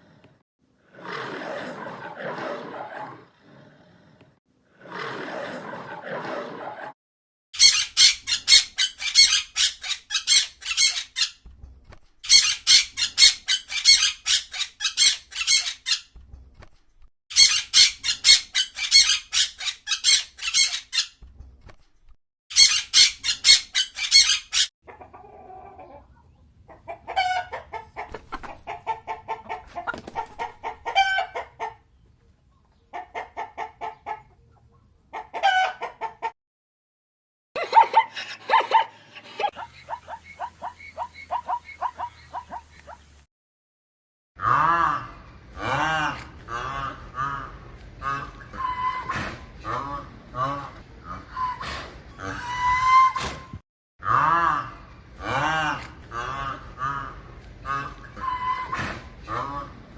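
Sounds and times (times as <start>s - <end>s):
chickens high-pitched calls: 22.5s - 31.8s, 32.9s - 36.4s, 37.6s - 43.1s, 46.6s - 50.5s, 51.2s - 53.4s, 56.3s - 59.7s
chickens clucking: 24.9s - 36.4s, 37.6s - 43.1s.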